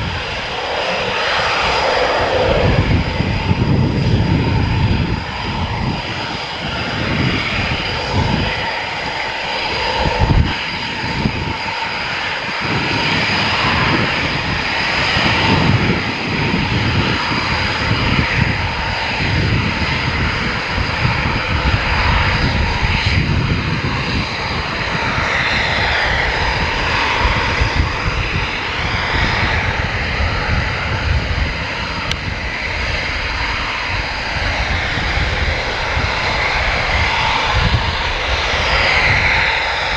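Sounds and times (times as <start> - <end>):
fighter jet engines running: 0.0 - 39.9.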